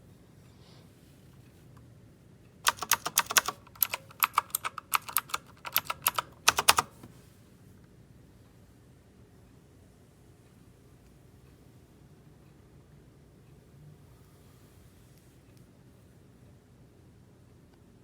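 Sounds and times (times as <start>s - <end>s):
clicky mechanical keyboard typing: 2.6s - 7.1s.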